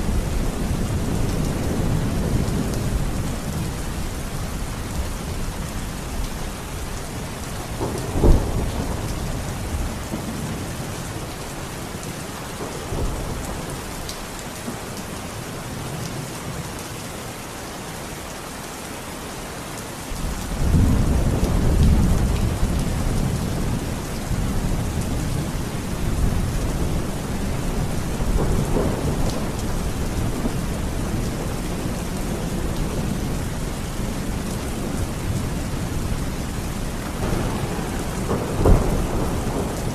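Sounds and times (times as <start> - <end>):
steady rain falling: 0.0 - 39.9
thunder: 7.8 - 10.6, 20.3 - 33.4, 37.1 - 39.9.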